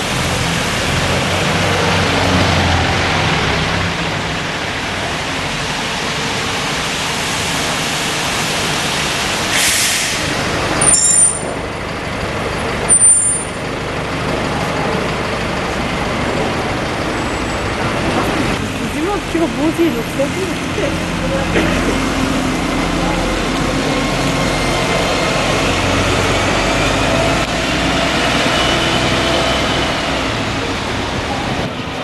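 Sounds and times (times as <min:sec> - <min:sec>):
vehicle and traffic noise: 0:00.0 - 0:32.0
air brake hiss: 0:09.5 - 0:10.3
high brake squeals: 0:09.6 - 0:11.6, 0:12.9 - 0:13.6.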